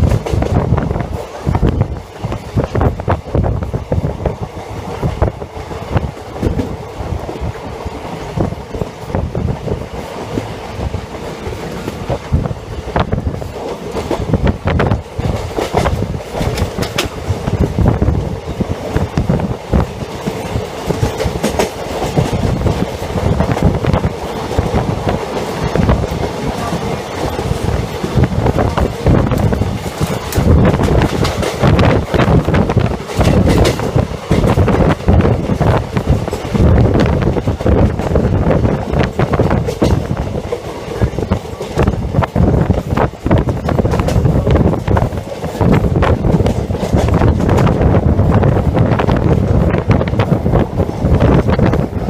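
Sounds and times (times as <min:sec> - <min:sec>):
train coach rumbling: 0:00.0 - 0:52.0
wheels clattering over rail joints: 0:18.8 - 0:51.8.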